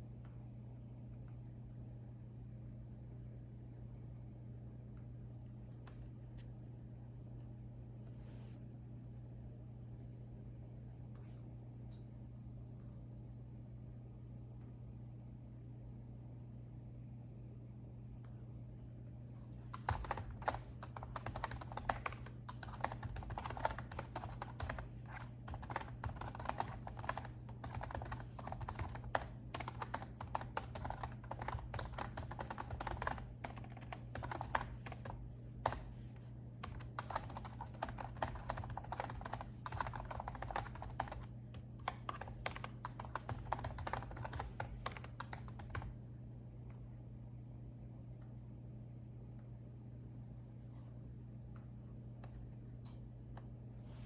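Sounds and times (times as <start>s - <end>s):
typing on laptop keyboard: 19.7s - 46.0s.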